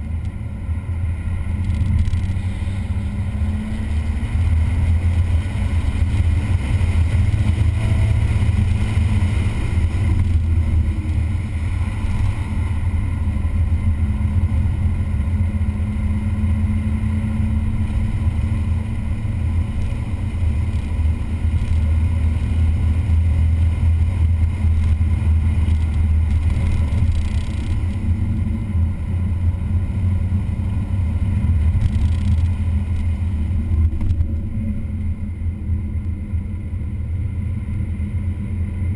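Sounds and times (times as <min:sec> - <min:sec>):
vehicle engine rumbling: 0:00.0 - 0:38.9.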